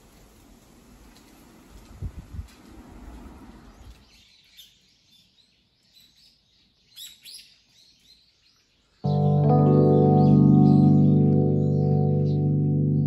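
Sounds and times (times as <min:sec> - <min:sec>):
small birds chirping: 0:03.6 - 0:13.0.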